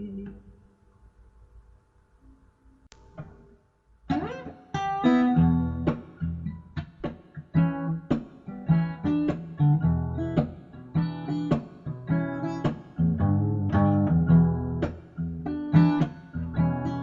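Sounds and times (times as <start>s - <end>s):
acoustic guitar strumming: 4.1s - 17.0s.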